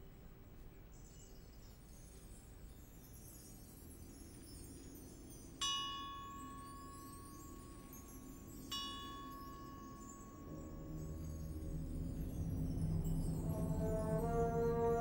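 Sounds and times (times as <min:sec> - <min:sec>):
struck metallic bell notes: 0:05.6 - 0:15.0
low instruments playing: 0:09.9 - 0:15.0.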